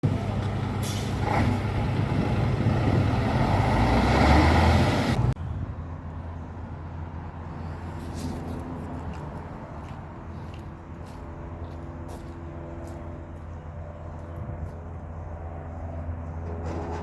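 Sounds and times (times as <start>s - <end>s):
diesel truck engine running: 0.0s - 5.4s.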